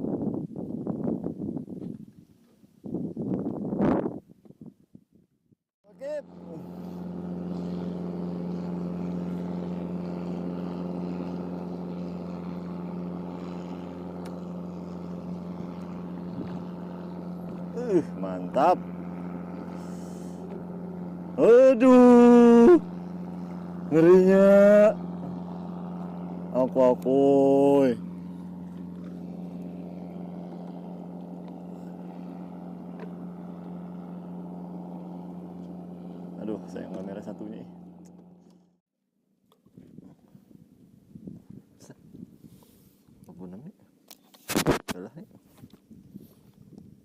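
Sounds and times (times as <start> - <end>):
boat engine running: 5.8 - 38.8.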